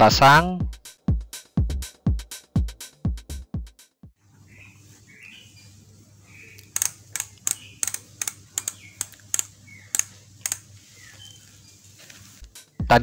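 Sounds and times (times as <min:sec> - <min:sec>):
bicycle freehub ratcheting clicks: 0:06.7 - 0:10.7.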